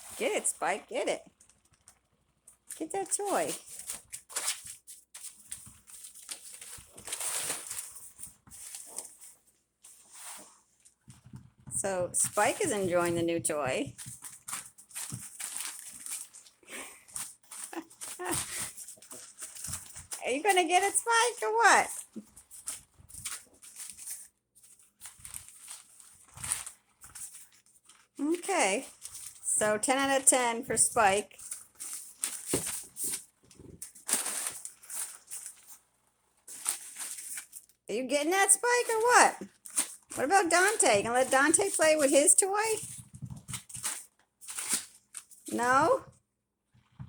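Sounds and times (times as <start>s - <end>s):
dog scuffling with toy: 30.2s - 35.8s.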